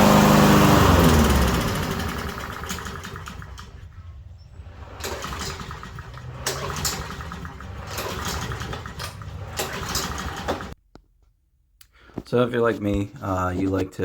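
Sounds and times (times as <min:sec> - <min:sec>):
lawnmower engine running: 0:00.0 - 0:10.8.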